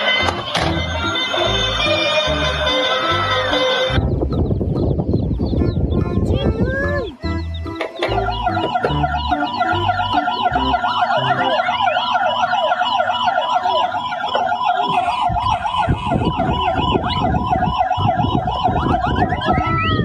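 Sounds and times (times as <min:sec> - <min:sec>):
siren yelping: 0:00.0 - 0:04.0, 0:07.2 - 0:20.0
rising siren swoops: 0:08.1 - 0:20.0.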